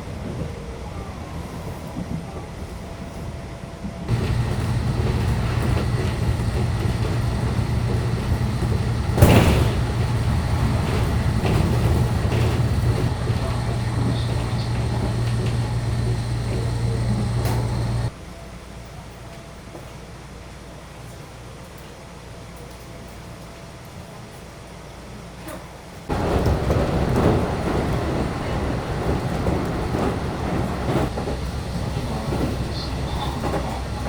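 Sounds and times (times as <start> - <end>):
loud clunk: 4.1 - 18.1
electric train drone: 4.1 - 18.2, 26.1 - 34.0.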